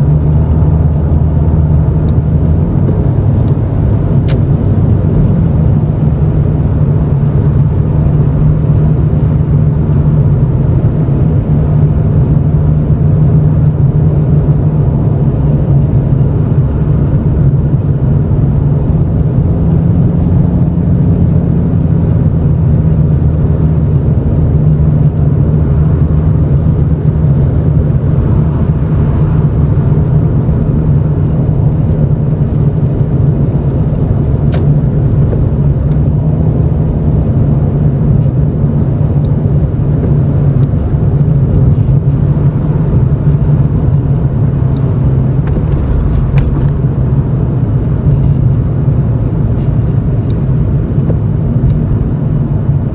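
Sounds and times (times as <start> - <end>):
car exhaust drone: 0.0 - 52.9.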